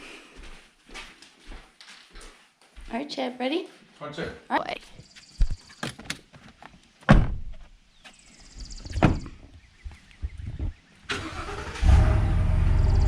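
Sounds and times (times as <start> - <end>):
truck engine starting and idling: 11.1 - 13.0.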